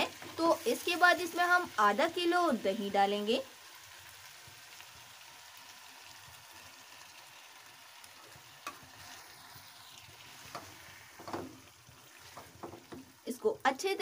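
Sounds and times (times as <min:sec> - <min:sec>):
chicken sizzling in oil: 0:00.0 - 0:14.0
spatula knocking against pan: 0:10.5 - 0:11.6.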